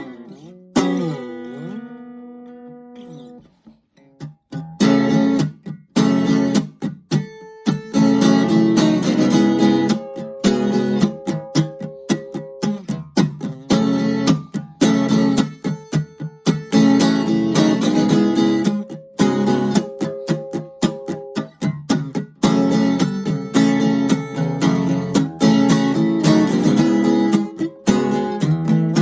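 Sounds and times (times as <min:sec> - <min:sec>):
acoustic guitar strumming chords: 0:00.0 - 0:29.0.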